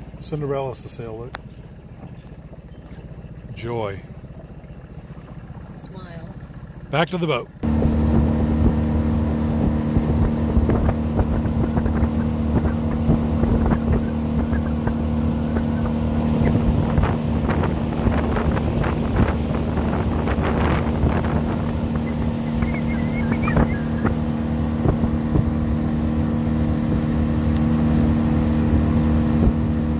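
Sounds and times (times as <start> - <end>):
boat engine droning: 0.0 - 29.9
wind on microphone: 7.6 - 29.9.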